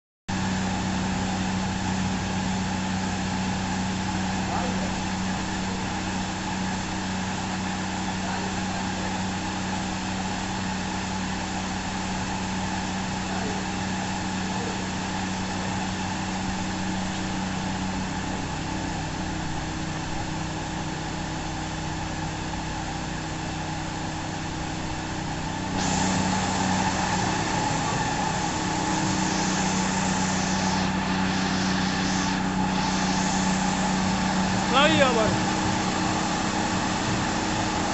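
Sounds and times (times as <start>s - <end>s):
machine humming: 0.3s - 37.9s
loud hissing: 25.7s - 35.6s.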